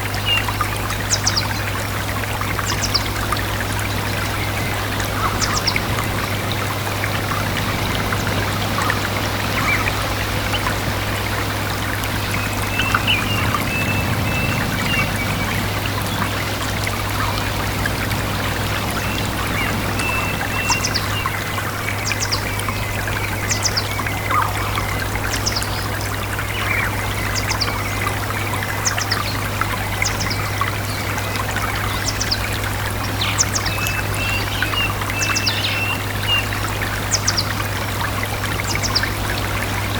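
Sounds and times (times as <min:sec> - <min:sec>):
stream trickling: 0:00.0 - 0:39.9
birds chirping: 0:02.4 - 0:37.7
bird warbling calls: 0:02.5 - 0:25.8.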